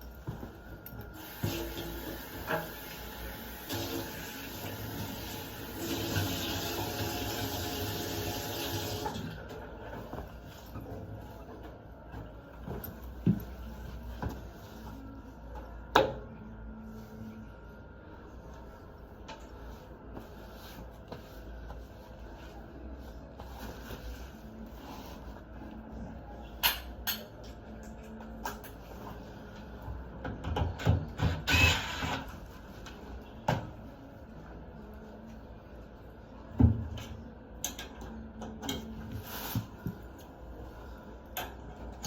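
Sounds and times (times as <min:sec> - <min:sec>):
scrape: 0:19.6 - 0:25.7, 0:39.1 - 0:39.8.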